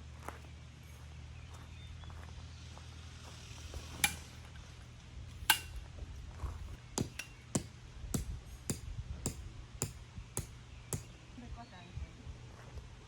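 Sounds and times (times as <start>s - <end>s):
sharp metallic strikes: 4.0s - 4.2s, 5.5s - 5.8s.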